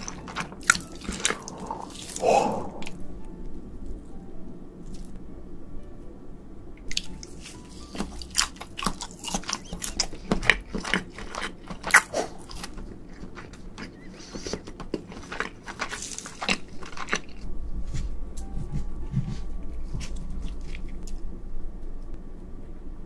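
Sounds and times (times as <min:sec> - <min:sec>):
crunchy chewing of shrimp: 0:00.0 - 0:03.0, 0:06.9 - 0:17.4.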